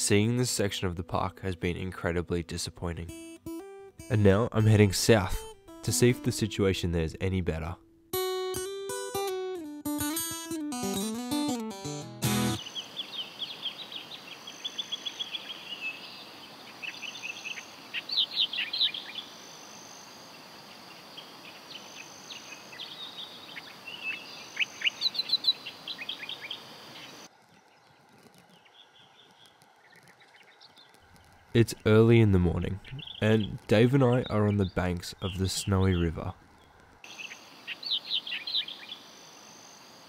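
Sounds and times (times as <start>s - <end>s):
outdoor hiss: 12.3s - 40.0s
birds chirping: 12.4s - 40.0s.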